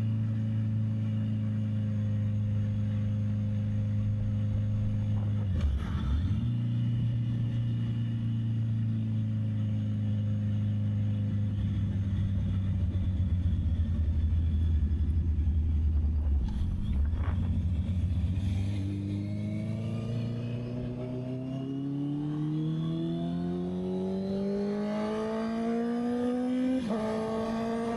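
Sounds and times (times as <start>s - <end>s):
motorcycle engine running: 0.0s - 27.9s
wind noise on microphone: 11.9s - 19.0s.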